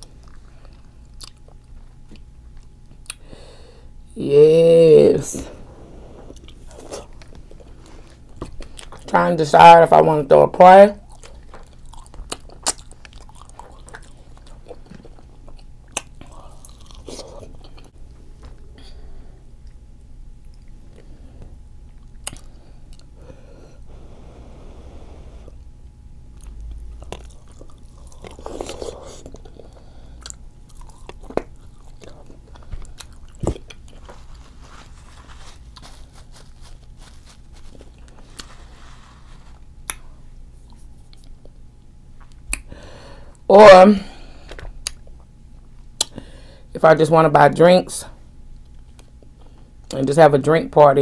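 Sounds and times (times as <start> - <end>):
chewing and biting food: 0.0 - 3.2, 6.3 - 9.1, 11.0 - 18.7, 19.6 - 21.2, 21.8 - 23.2, 26.3 - 38.8
steady low hum: 0.0 - 51.0.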